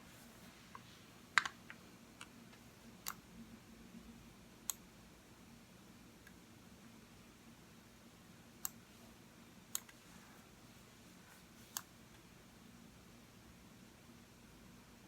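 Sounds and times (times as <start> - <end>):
faint low room hum: 0.0 - 15.0
computer mouse clicks: 3.0 - 3.2, 8.6 - 8.8, 9.7 - 10.0.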